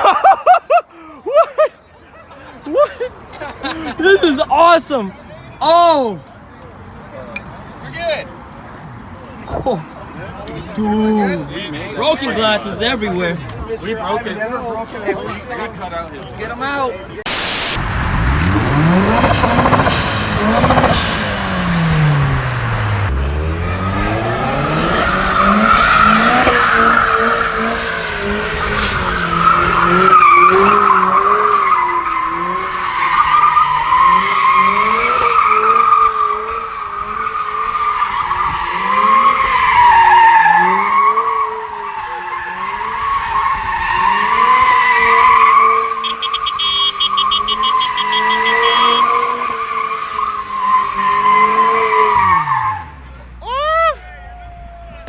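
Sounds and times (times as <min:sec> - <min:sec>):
car engine revving: 0:17.3 - 0:53.1
tyre squeal: 0:23.7 - 0:52.9.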